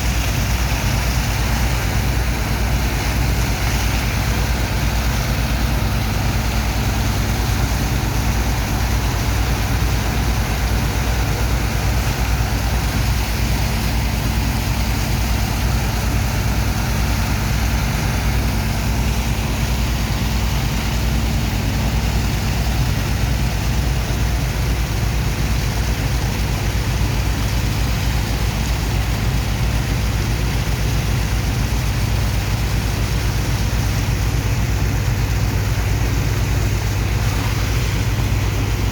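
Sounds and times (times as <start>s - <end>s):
dredger engine and pump droning: 0.0s - 38.9s.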